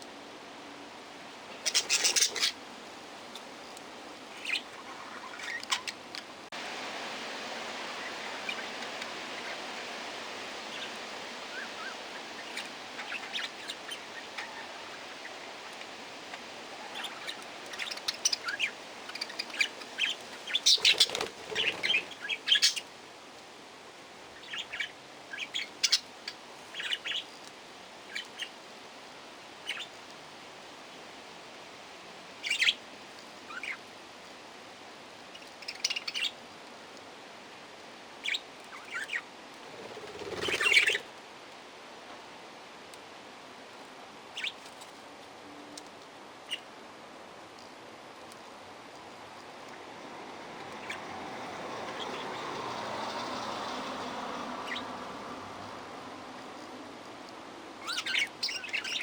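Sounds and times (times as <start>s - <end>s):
steady background hiss: 0.0s - 59.0s
parrots chirping: 1.6s - 2.6s, 4.2s - 6.0s, 7.8s - 9.8s, 10.7s - 15.9s, 16.6s - 22.9s, 24.4s - 27.3s, 32.4s - 32.8s, 33.5s - 33.8s, 38.2s - 41.1s, 50.8s - 55.4s, 57.8s - 59.0s.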